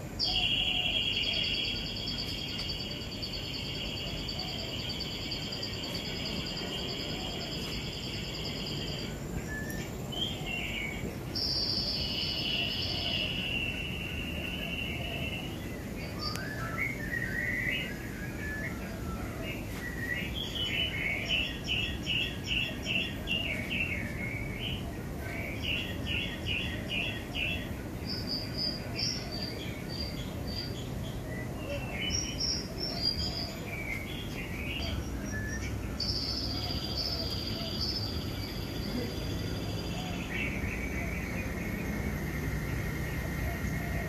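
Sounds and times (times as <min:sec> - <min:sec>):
birds chirping: 0:00.0 - 0:44.0
low background noise: 0:00.0 - 0:44.0.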